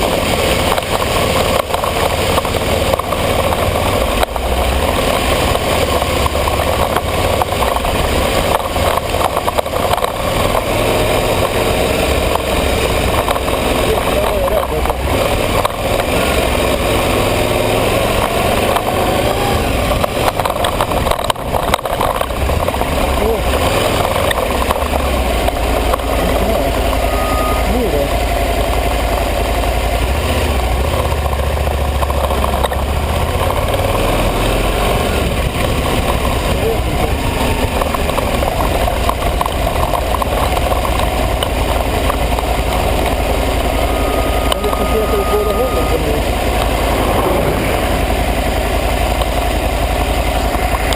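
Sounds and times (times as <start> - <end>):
motorcycle engine running: 0.0 - 50.9
rushing noise: 0.0 - 50.9.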